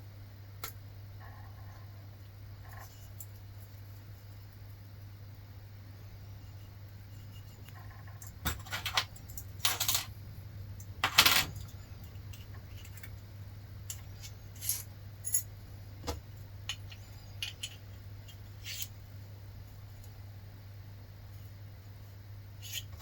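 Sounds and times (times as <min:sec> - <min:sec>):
metal parts clinking and rattling: 0:07.8 - 0:10.2, 0:10.8 - 0:13.2, 0:13.9 - 0:15.5, 0:16.7 - 0:18.9.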